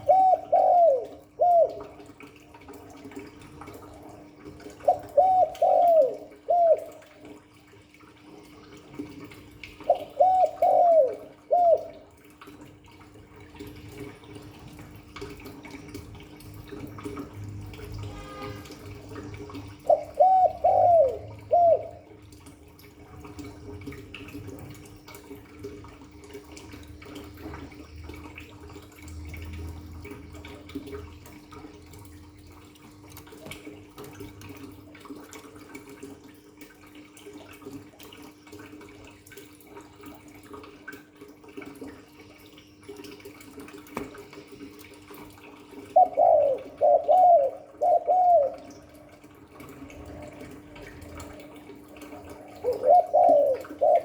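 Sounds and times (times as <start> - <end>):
dove cooing: 0.0 - 2.4, 4.0 - 7.4, 9.8 - 12.2, 19.4 - 22.2, 44.1 - 54.0.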